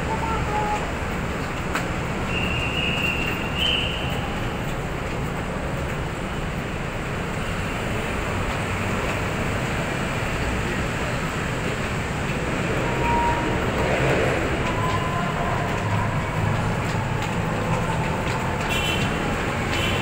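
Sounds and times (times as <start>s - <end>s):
light-rail train rumbling: 0.0s - 20.0s.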